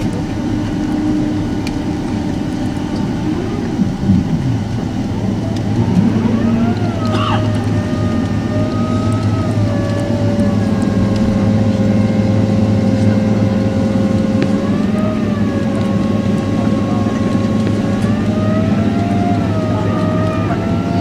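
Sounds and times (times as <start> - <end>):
jet engine rumble: 0.0 - 21.0
jet engine whine: 0.0 - 21.0.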